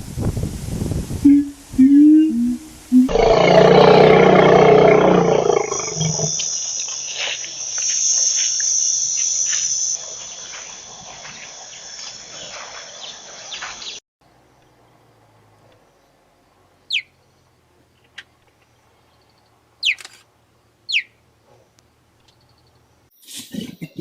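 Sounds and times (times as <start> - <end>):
large animal roaring call: 3.1 - 6.3
insects chorus: 3.1 - 14.0.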